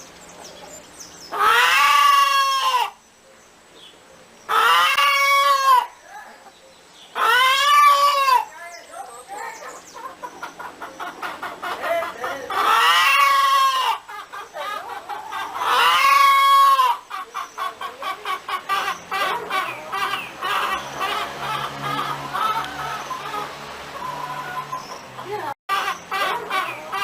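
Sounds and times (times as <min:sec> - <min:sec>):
chickens clucking: 0:00.4 - 0:03.0, 0:04.4 - 0:27.0
rooster crowing: 0:20.0 - 0:25.0.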